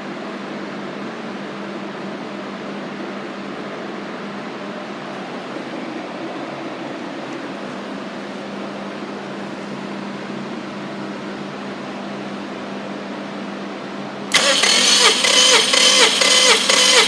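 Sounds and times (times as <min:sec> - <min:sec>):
starter motor cranking engine: 0:14.3 - 0:17.0.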